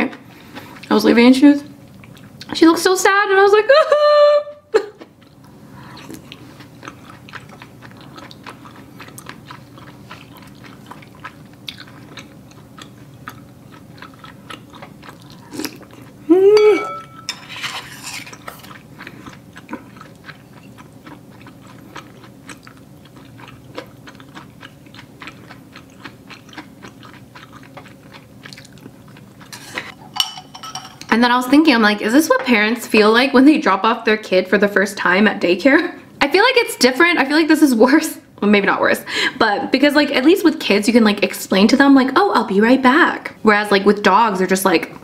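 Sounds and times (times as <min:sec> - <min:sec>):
close-up chewing with wet clicks: 0:01.8 - 0:02.6, 0:05.0 - 0:16.2, 0:18.6 - 0:29.5.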